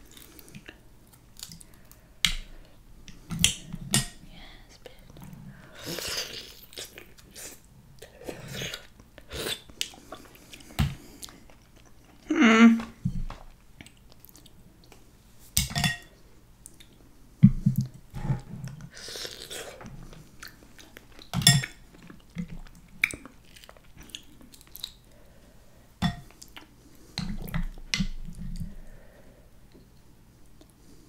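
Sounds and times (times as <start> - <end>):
close chewing: 13.8 - 15.0, 21.9 - 25.1.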